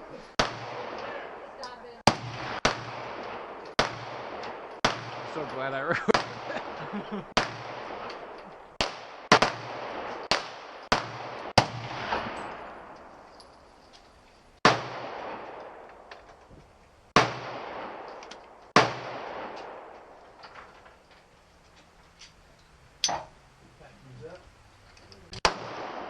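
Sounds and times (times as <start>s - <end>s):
gunshots with echo: 0.0s - 13.0s, 14.6s - 16.1s, 17.1s - 20.1s, 25.4s - 26.0s.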